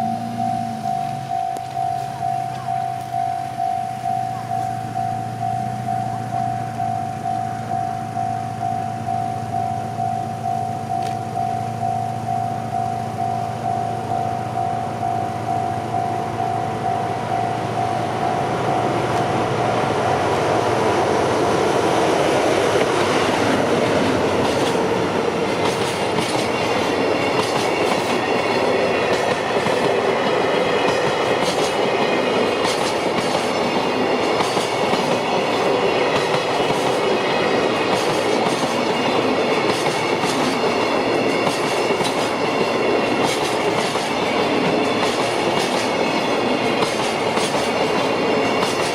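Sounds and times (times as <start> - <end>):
steady ringing tone: 0.0 - 22.6
freight train passing: 0.0 - 48.9
wheels clicking over rail joints: 21.8 - 48.9.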